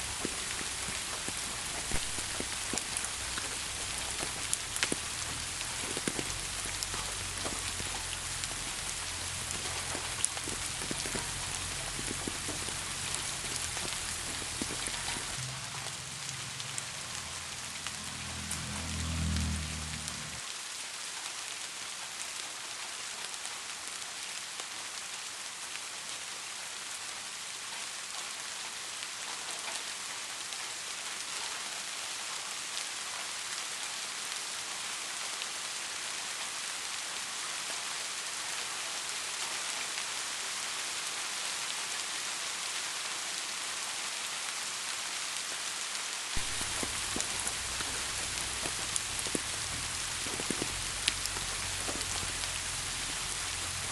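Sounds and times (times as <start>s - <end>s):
loud single raindrops: 0.0s - 20.5s, 45.8s - 53.9s
steady rain falling: 0.0s - 53.9s.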